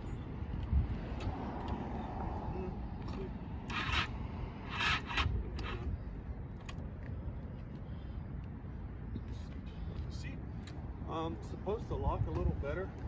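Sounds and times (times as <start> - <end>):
low wind rumble: 0.0 - 13.0
scraping rubs: 3.7 - 4.1, 4.7 - 5.9.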